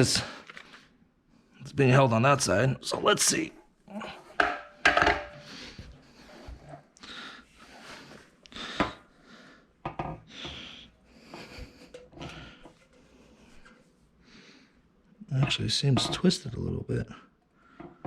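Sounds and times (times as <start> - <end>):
parts knocking and clunking: 4.3 - 5.9, 15.3 - 16.4.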